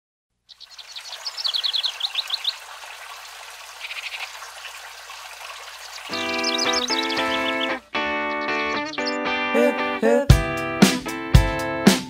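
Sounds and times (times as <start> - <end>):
songbird chirping: 0.4 - 10.0
outdoor hiss: 0.5 - 7.8.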